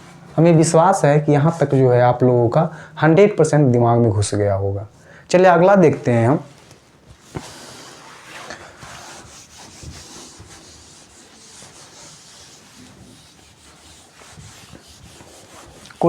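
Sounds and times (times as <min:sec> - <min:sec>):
pen scratching on paper: 0:07.3 - 0:16.0.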